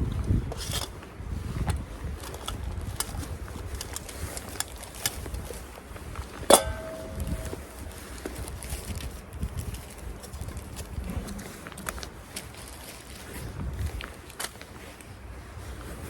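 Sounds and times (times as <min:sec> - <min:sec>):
camping gear clicks and knocks: 0:00.1 - 0:15.1
sharp metallic clank: 0:06.5 - 0:08.2.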